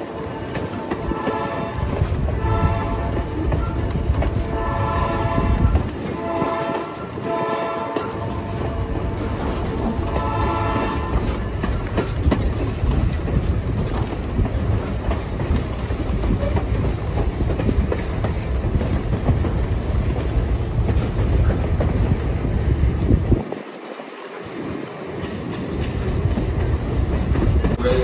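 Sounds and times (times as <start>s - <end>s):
train rumbling on rails: 0.0s - 28.0s
wheels clicking over rail joints: 0.0s - 28.0s
locomotive horn: 0.2s - 11.5s.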